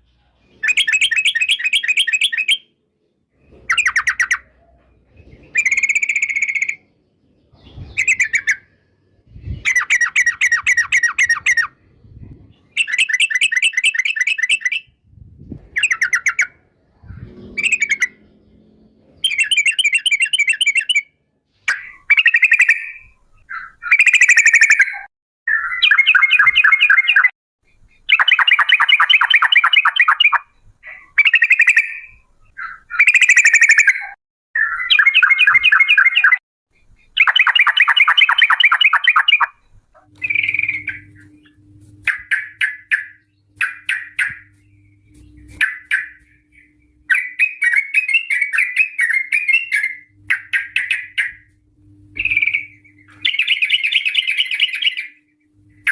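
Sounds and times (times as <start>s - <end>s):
bird rolling chatter song: 0.5s - 2.7s, 3.4s - 6.9s, 7.5s - 8.8s, 9.5s - 15.0s, 15.6s - 55.9s.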